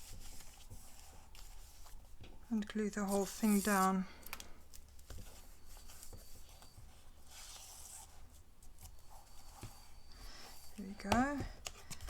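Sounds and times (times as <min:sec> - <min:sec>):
soft paper rustle: 0:00.0 - 0:12.0
paper rubbed flat by hand: 0:03.1 - 0:03.9.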